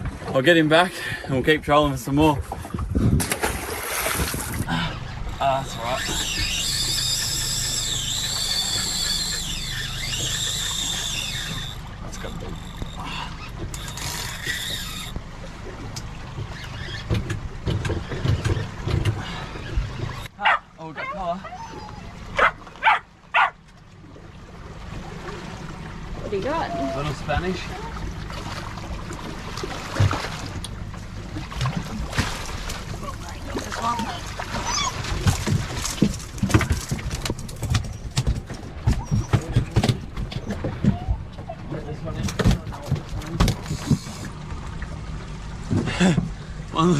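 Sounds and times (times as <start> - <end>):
boat engine drone: 0.0 - 46.9
water noise: 0.0 - 46.9
fish flapping on deck: 31.6 - 41.1.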